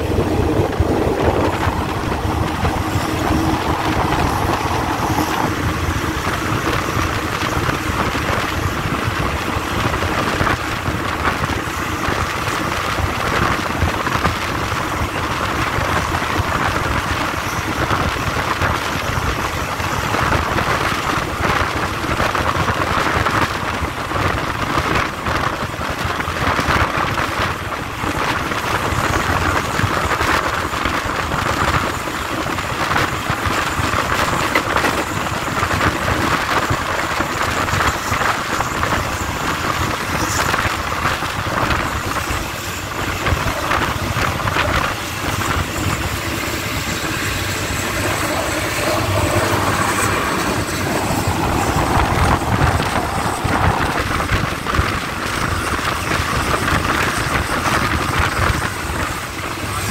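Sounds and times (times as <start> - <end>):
air rushing past: 0.0 - 9.1, 42.1 - 55.7
train wheel and rail noise: 0.0 - 59.9.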